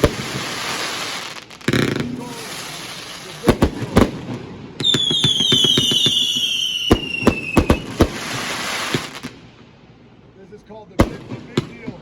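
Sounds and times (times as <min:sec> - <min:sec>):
firework crackling hiss: 0:00.0 - 0:04.2, 0:04.8 - 0:09.4
firework bangs: 0:00.0 - 0:09.5, 0:11.0 - 0:12.0
falling firework whistles: 0:04.8 - 0:09.3.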